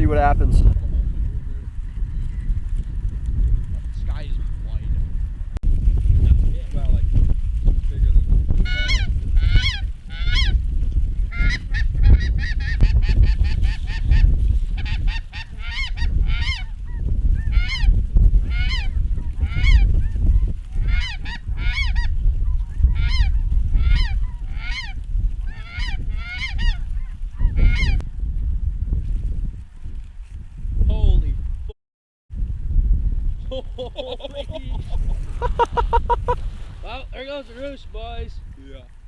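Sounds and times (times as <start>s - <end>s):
wind rumble on microphone: 0.0s - 31.7s, 32.3s - 39.0s
geese honking: 8.7s - 10.5s, 14.8s - 17.9s, 18.5s - 19.9s, 20.8s - 22.1s, 23.0s - 26.8s, 27.4s - 28.0s.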